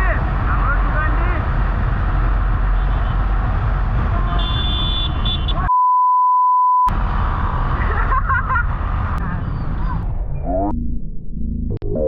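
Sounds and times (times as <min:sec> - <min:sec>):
pure bleep tone: 0:05.7 - 0:06.9.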